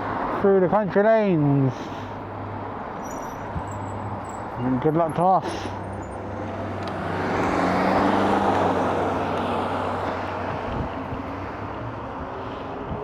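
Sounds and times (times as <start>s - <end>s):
low hum of riding: 0.0s - 13.0s
car passing: 5.6s - 13.0s.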